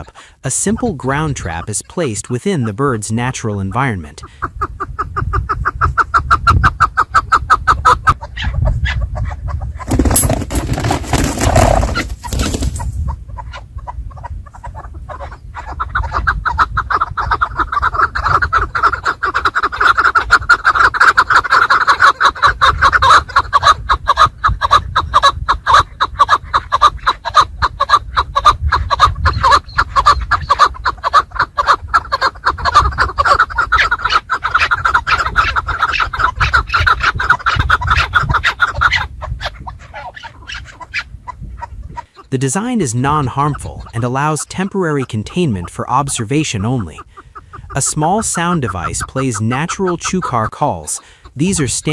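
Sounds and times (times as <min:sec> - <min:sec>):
partridges clucking: 0:09.8 - 0:13.0.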